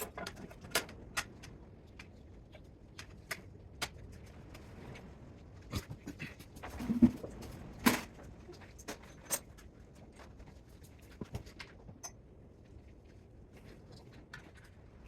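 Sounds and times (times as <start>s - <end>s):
tools and parts clicking and knocking: 0.0s - 4.6s, 5.8s - 12.4s.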